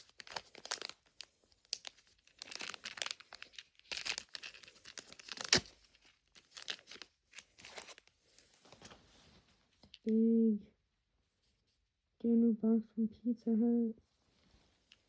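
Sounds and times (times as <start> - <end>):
plastic wrapping tearing and crinkling: 0.0 - 8.1.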